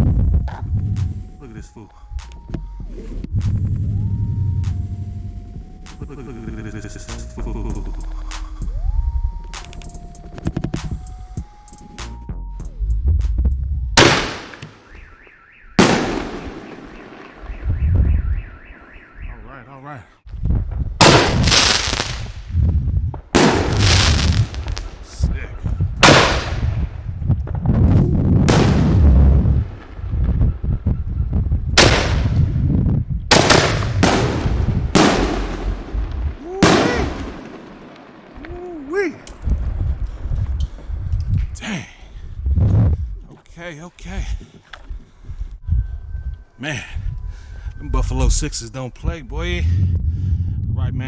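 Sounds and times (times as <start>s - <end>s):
low rumbling echo: 0.0s - 9.5s, 12.8s - 15.2s, 15.8s - 19.4s, 20.6s - 43.2s, 45.2s - 51.0s
firework shells bursting: 14.0s - 15.2s, 15.8s - 18.1s, 21.0s - 27.7s, 28.4s - 30.8s, 31.6s - 41.5s.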